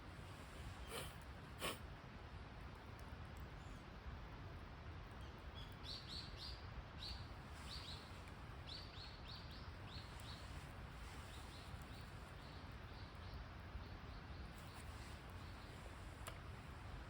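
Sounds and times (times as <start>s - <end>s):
small bird chirping: 5.2s - 16.1s.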